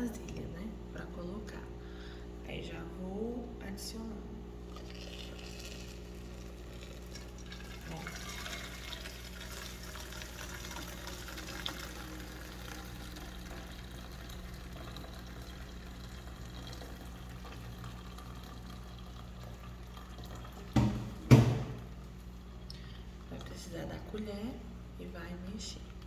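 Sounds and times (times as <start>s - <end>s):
liquid trickling into a bowl: 4.7s - 21.2s.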